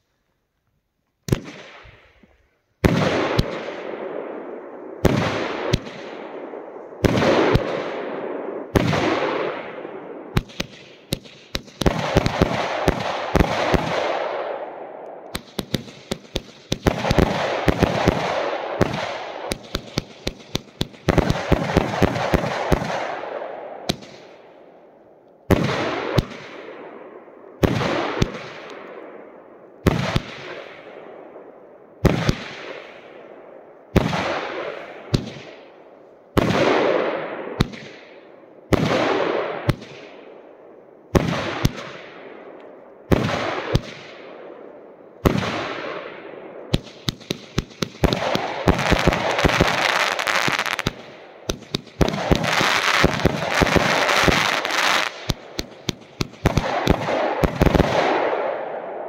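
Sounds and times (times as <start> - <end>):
fireworks cracking and crackling: 1.3 - 14.6, 15.3 - 24.4, 25.5 - 26.9, 27.6 - 29.1, 29.8 - 30.9, 32.0 - 33.2, 33.9 - 35.7, 36.4 - 40.2, 41.1 - 42.3, 43.1 - 44.3, 45.2 - 46.1, 46.7 - 59.0
firework bangs with hiss: 8.7 - 9.2, 10.3 - 14.1, 15.3 - 23.1, 32.0 - 33.0, 46.7 - 58.3.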